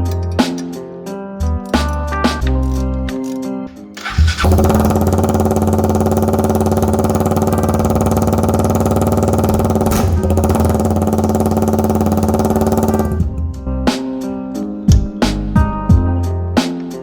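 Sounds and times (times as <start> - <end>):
motorcycle engine idling: 4.0 - 13.5.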